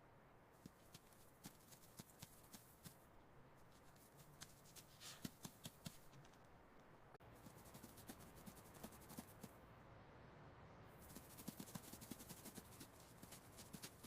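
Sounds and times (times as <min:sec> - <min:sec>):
light taps and scratches: 0:03.7 - 0:06.5, 0:11.0 - 0:14.0.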